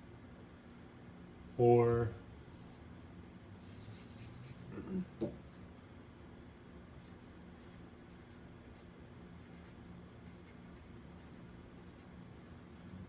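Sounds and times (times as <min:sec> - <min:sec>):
low room hum: 0:00.0 - 0:13.0
pen scratching while writing: 0:07.6 - 0:12.1.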